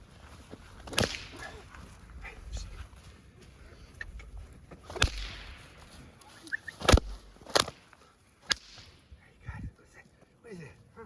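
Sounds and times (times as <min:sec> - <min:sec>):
whip cracking: 0:00.8 - 0:01.8, 0:04.9 - 0:09.1.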